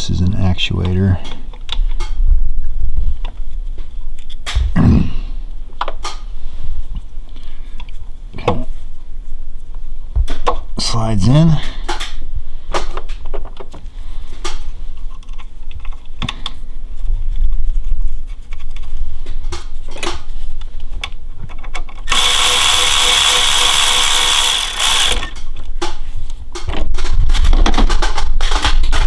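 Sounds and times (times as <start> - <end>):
metal parts clicking and knocking: 21.5 - 25.6
power tool running: 22.1 - 25.4.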